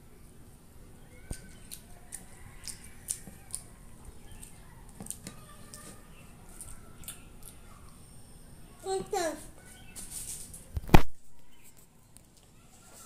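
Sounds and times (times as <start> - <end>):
child chewing: 1.2 - 8.3
wet mouth clicks and smacks: 1.3 - 3.7.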